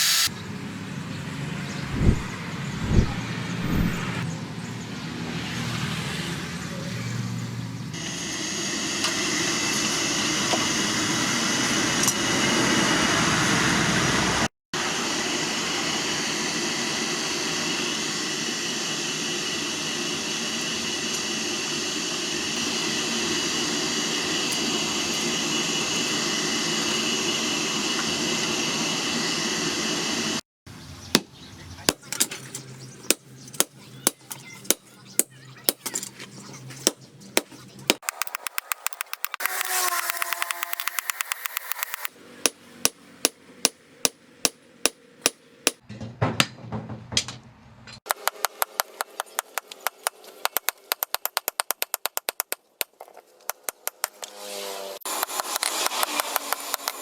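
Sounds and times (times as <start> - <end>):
power grinder whining on steel: 0.0 - 0.3, 37.9 - 42.1
hammer strikes on metal: 33.1 - 36.0, 36.8 - 45.8.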